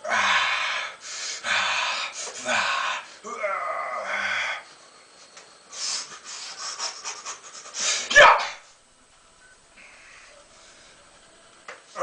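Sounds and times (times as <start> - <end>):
man panting hard: 0.0 - 3.2, 5.7 - 8.1.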